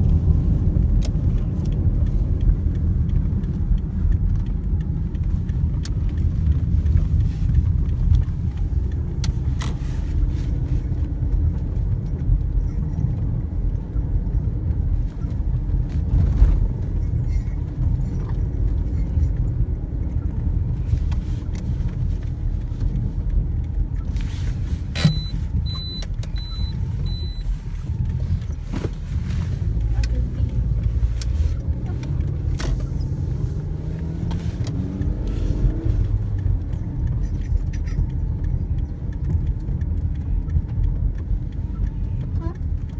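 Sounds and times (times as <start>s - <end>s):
car road and engine rumble: 0.0s - 42.9s
short high-pitched beeps: 25.0s - 27.5s.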